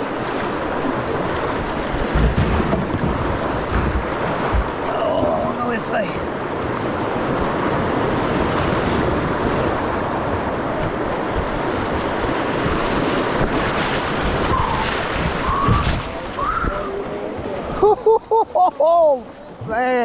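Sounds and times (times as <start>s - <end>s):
wind noise on microphone: 0.0s - 5.3s, 6.5s - 17.8s
whitewater rushing: 0.0s - 18.2s
dull knocks: 1.9s - 4.9s.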